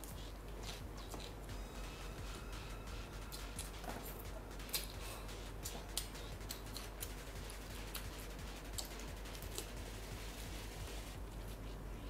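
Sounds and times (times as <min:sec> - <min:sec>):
mouth clicks and chewing: 0:00.0 - 0:01.4
low steady hum: 0:00.0 - 0:12.0.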